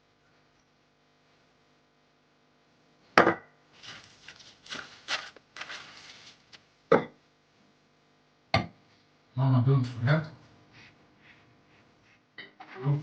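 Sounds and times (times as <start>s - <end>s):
scraping and rustling: 3.8s - 6.6s.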